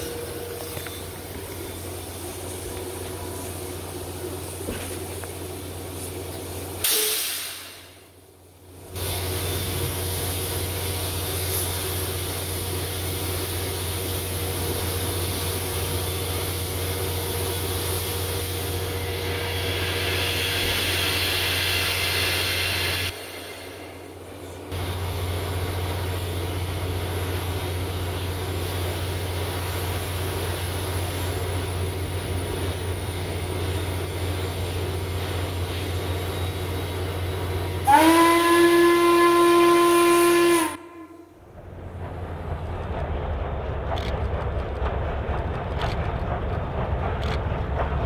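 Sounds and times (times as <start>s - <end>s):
steady rumble and hiss: 0.0s - 37.9s, 41.2s - 48.0s
steam locomotive whistle: 6.8s - 7.8s, 37.7s - 41.4s.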